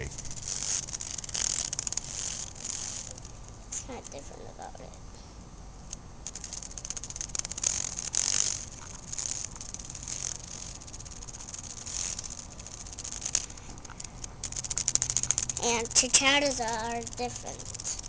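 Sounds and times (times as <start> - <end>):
cicada wings buzzing: 0.0 - 4.9, 5.8 - 18.0.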